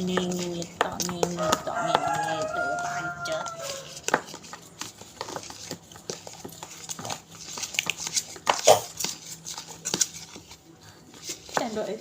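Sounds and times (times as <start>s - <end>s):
spoon clicking and scraping container: 0.0s - 11.8s
spoon stirring slime: 0.0s - 12.0s.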